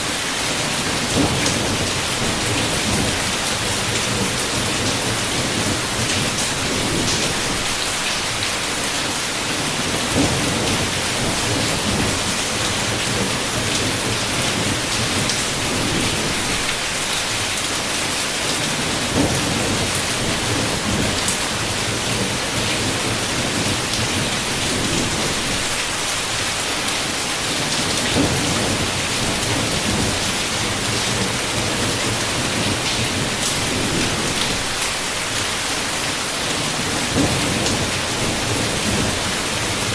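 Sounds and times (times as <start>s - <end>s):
rain on a window: 0.0s - 39.9s
thunder: 0.8s - 7.8s, 9.8s - 16.8s, 18.8s - 25.7s, 27.8s - 34.8s, 36.9s - 39.9s.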